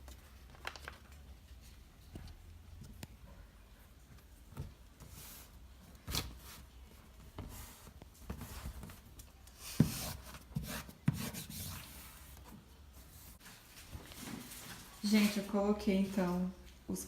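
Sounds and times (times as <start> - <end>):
paper rustling and scraping: 13.1 - 16.3.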